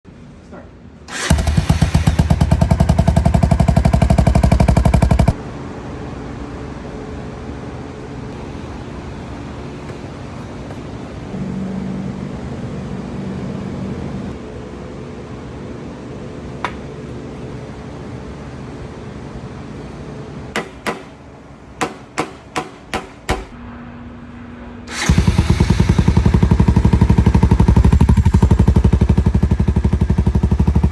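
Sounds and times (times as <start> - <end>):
quiet steady engine running: 1.0 - 30.9
loud pulsing engine exhaust: 1.1 - 7.6, 8.2 - 16.5, 23.6 - 30.9
atv engine running loudly: 1.2 - 5.4, 25.0 - 30.9
sharp knocks: 20.6 - 21.2, 21.8 - 23.6.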